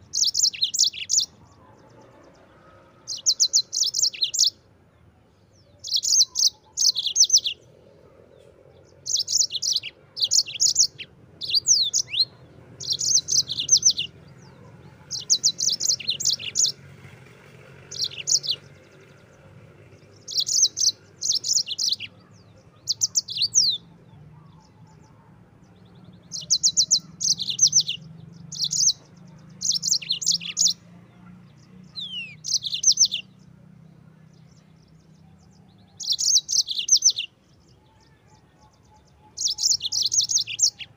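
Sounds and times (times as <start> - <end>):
canary singing trilled notes: 0.0 - 1.4, 3.1 - 4.6, 5.6 - 7.7, 8.8 - 17.2, 17.8 - 25.0, 26.0 - 30.9, 31.5 - 33.5, 34.4 - 40.9.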